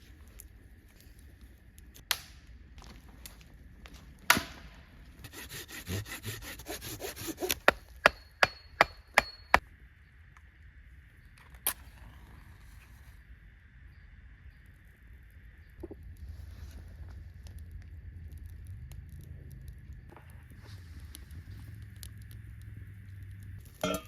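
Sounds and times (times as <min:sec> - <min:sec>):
rasping sawing strokes: 0:05.2 - 0:09.4.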